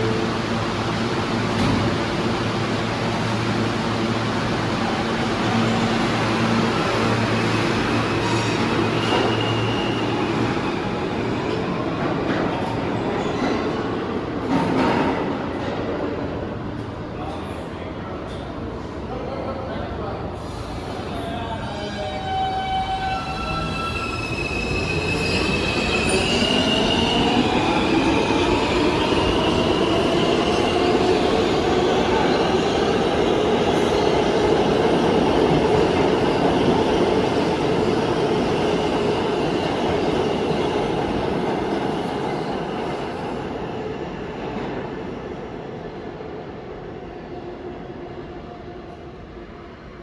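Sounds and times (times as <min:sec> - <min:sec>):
subway train rumble: 0:00.0 - 0:50.0
train wheel squeal: 0:07.3 - 0:11.6, 0:21.1 - 0:28.4.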